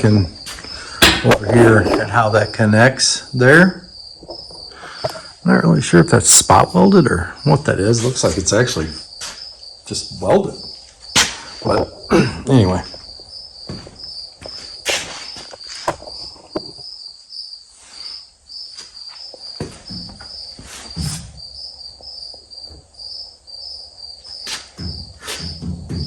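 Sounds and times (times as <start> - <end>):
knocks and clunks: 0.0 - 2.7, 4.2 - 5.3, 10.2 - 16.8, 19.6 - 21.4, 24.5 - 26.0
crickets chirping: 0.0 - 26.0.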